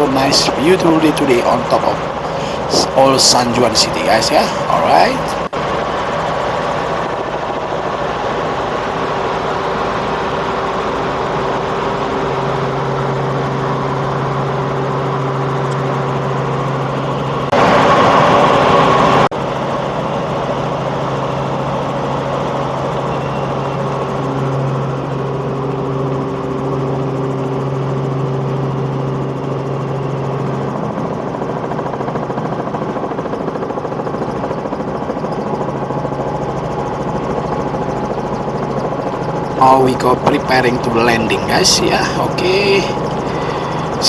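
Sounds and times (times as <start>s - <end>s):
helicopter engine and rotors droning: 0.0s - 44.0s.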